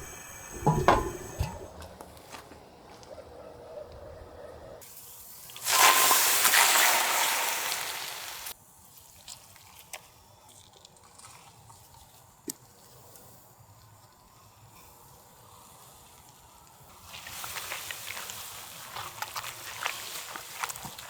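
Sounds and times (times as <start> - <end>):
food sizzling on hot griddle: 5.6 - 8.5.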